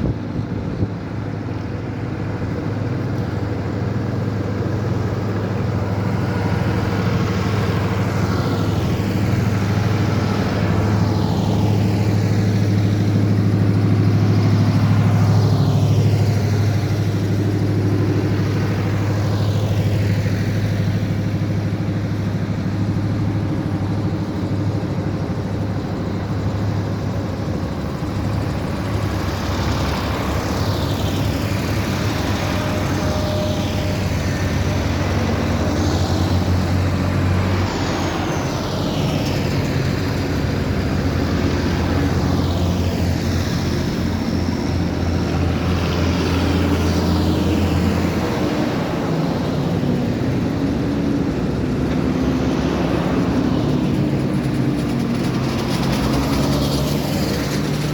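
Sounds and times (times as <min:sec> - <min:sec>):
tractors driving past: 0:00.0 - 0:57.9.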